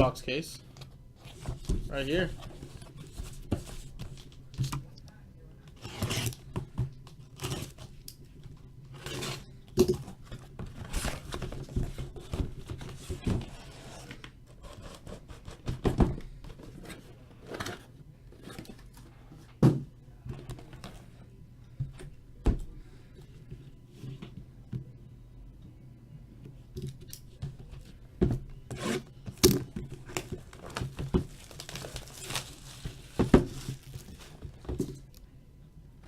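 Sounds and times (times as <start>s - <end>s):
tape and wrapping tearing: 31.4s - 34.3s.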